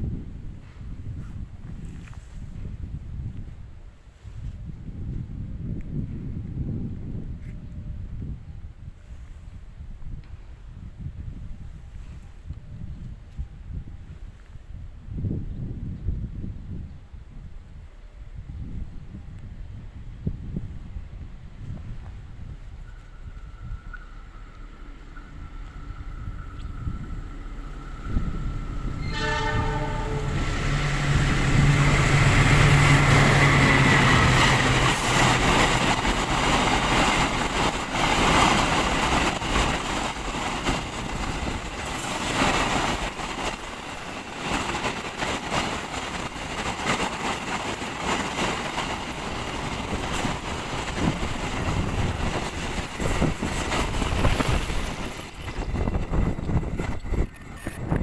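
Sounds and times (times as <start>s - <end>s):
locomotive engine passing: 23.0s - 58.0s
train horn blast: 28.8s - 31.0s
train wheels clattering over rails: 28.8s - 58.0s.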